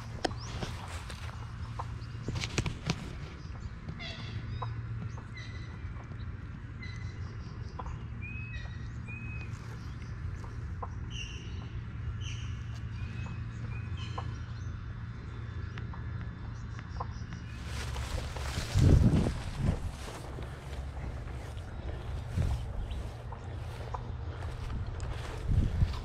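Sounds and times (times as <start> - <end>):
low background hum: 0.0 - 26.0
small birds chirping: 0.0 - 26.0.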